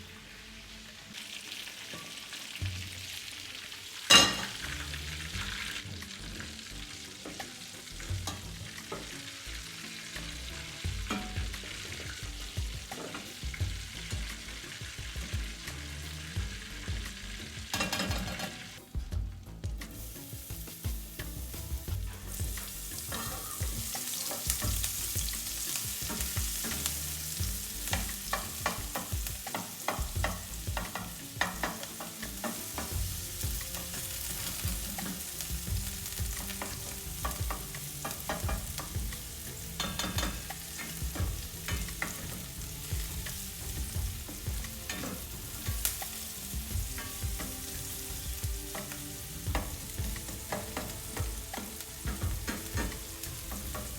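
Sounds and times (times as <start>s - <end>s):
food sizzling in a pan: 0.0s - 53.9s
utensil scraping a pan: 20.0s - 53.9s.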